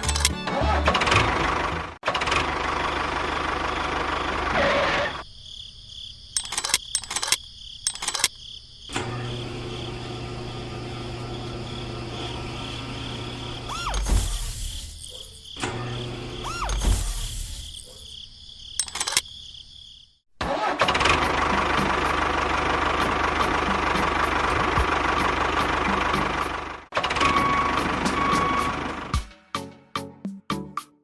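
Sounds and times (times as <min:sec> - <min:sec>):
high insect-like tone: 0:05.3 - 0:09.9, 0:11.3 - 0:20.2
sharp clicks: 0:06.4 - 0:08.4, 0:18.8 - 0:19.3
small electric motor humming: 0:09.0 - 0:17.9.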